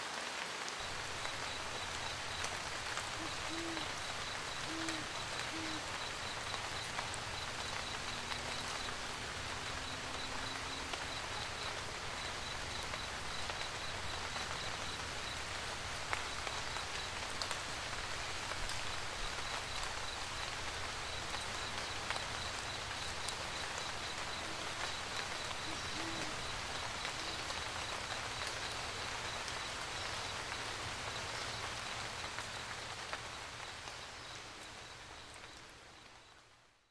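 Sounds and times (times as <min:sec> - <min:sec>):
rain pattering: 0:00.0 - 0:36.8
owl hooting: 0:01.1 - 0:09.0, 0:23.6 - 0:27.6.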